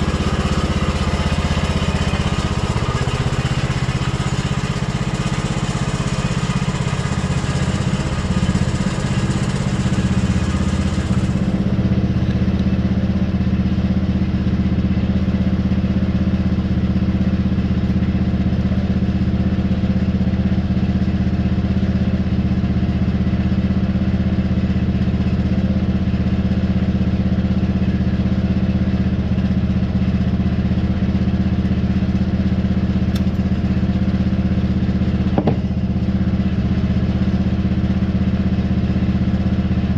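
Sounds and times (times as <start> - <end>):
small engine humming: 0.0 - 21.8.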